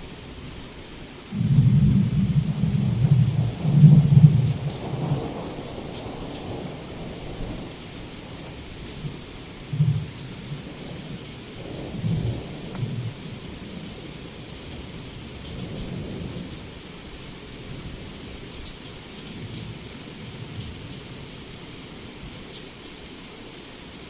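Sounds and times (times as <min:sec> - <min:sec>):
heavy rain through a window: 0:00.0 - 0:24.0
thunder rumbling: 0:01.3 - 0:18.6.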